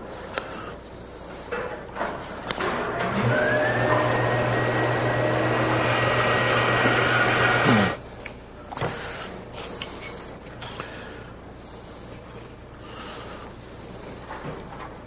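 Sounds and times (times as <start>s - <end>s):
power saw motor whining: 2.6s - 8.0s.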